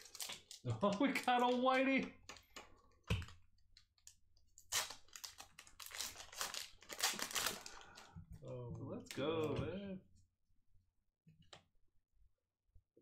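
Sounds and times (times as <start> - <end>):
foil wrapper crinkling: 0.0 - 1.9, 4.0 - 8.1.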